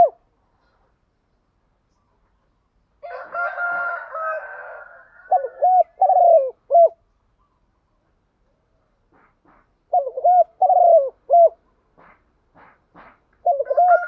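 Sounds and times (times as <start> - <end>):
dove cooing: 0.0 - 0.2, 5.1 - 7.0, 9.9 - 11.6, 13.4 - 14.0.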